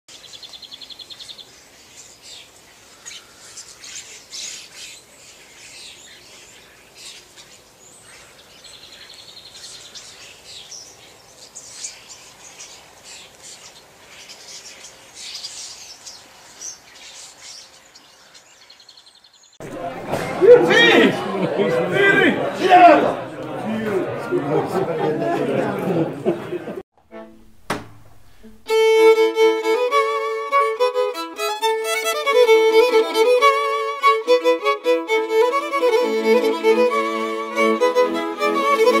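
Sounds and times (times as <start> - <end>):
small birds chirping and singing: 0.1 - 19.6.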